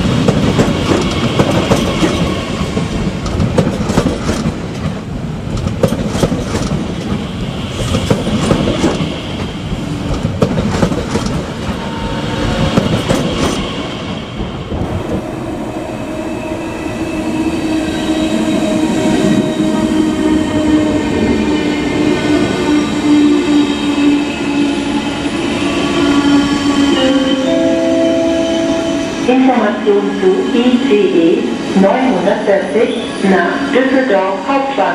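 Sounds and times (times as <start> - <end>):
train wheels clattering over rails: 0.0 - 15.2
train whine: 0.0 - 34.9.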